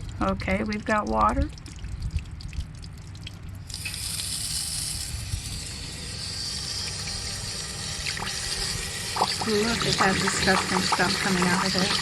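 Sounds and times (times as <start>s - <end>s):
water spraying and gushing: 3.6s - 12.0s.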